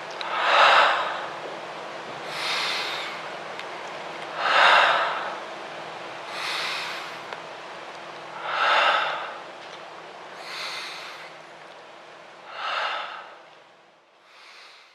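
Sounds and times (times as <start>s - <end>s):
heavy rhythmic breathing: 0.0s - 1.5s, 2.1s - 5.6s, 6.2s - 7.4s, 8.2s - 11.8s, 12.4s - 13.6s, 14.2s - 14.9s
faint low hum: 0.0s - 14.9s
soft higher-pitched breath: 2.3s - 3.3s, 14.2s - 14.9s.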